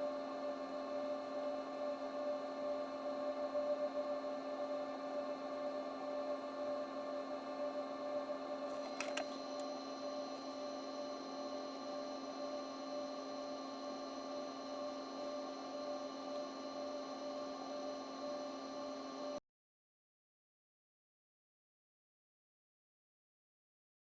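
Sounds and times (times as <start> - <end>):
steady electrical hum: 0.0 - 19.4
sharp clicks: 8.8 - 9.7.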